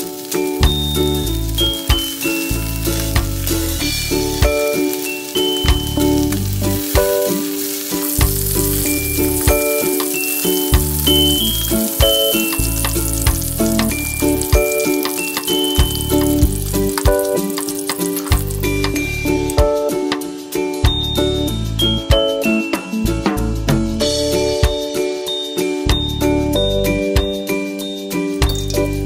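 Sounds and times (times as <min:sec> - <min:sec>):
rice balls sizzling in oil: 0:00.0 - 0:19.6
background music: 0:00.0 - 0:29.0.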